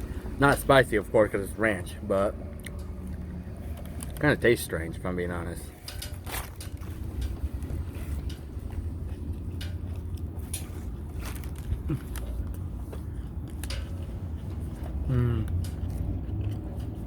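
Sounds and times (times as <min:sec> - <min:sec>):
person chewing food: 0:06.2 - 0:17.0.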